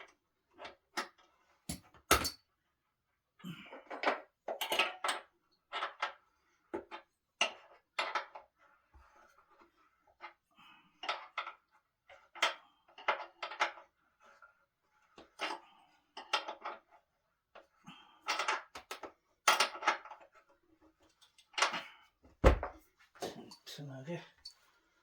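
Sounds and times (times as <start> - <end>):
metal hardware clinking: 1.7 - 2.4.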